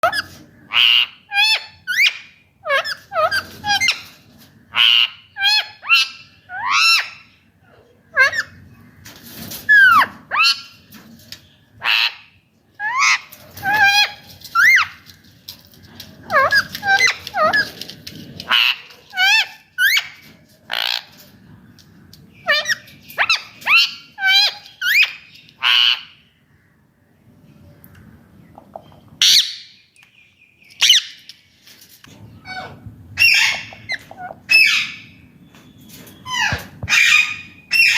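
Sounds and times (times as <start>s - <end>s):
parrot screeching: 0.0s - 4.0s, 4.7s - 7.2s, 18.5s - 21.1s, 22.4s - 26.1s
parakeet squawking: 29.2s - 29.7s.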